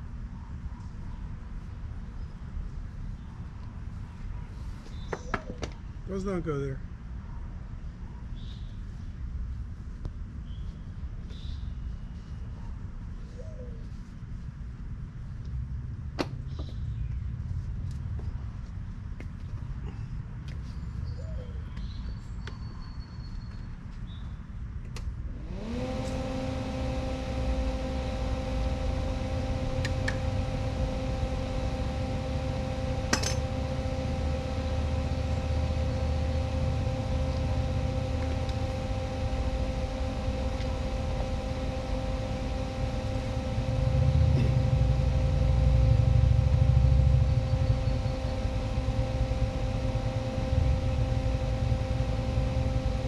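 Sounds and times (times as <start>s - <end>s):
small electric motor spinning: 25.3s - 53.0s.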